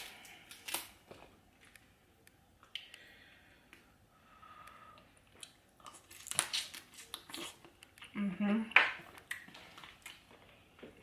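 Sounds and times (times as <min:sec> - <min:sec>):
soft chewing: 0:04.6 - 0:08.3, 0:09.0 - 0:11.0.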